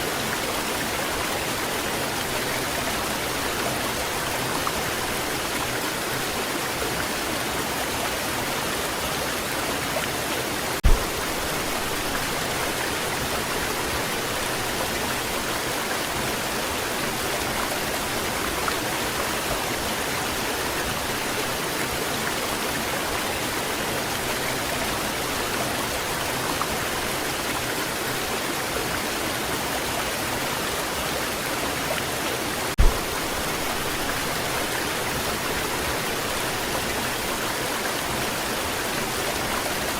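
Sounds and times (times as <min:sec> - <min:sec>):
waterfall rushing: 0:00.0 - 0:39.9
low thumps: 0:10.8 - 0:11.5, 0:32.8 - 0:33.5.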